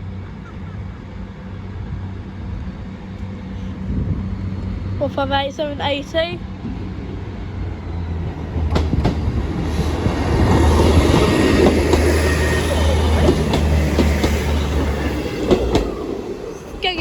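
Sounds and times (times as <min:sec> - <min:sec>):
diesel train engine drone: 0:00.0 - 0:17.0
wheels clicking over rail joints: 0:08.5 - 0:17.0.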